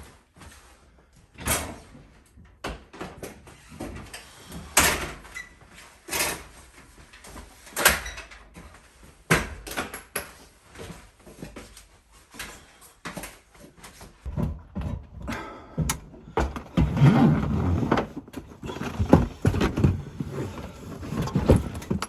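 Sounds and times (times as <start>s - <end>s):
sharp knocks and thuds: 14.3s - 20.3s
objects clattering: 14.3s - 22.0s
rustling: 16.2s - 22.0s.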